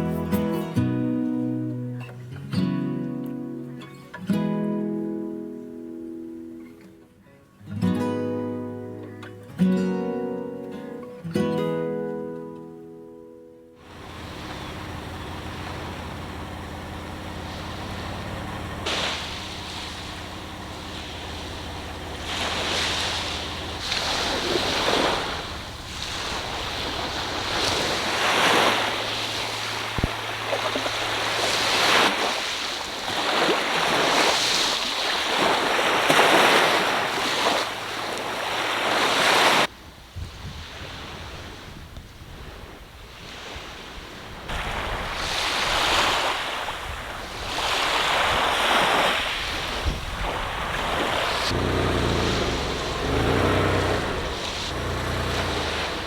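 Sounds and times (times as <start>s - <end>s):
ocean surf breaking: 13.8s - 39.7s, 42.6s - 56.0s
wind buffeting microphone: 13.9s - 32.2s, 39.7s - 56.0s.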